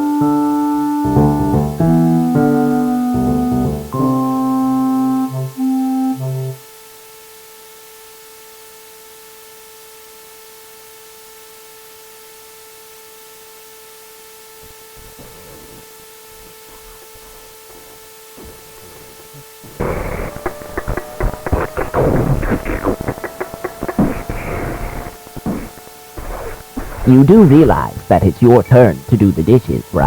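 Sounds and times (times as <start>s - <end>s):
electronic piano tune: 0.0s - 6.7s, 19.8s - 30.0s
steady electronic tone: 0.0s - 6.9s, 18.8s - 30.0s.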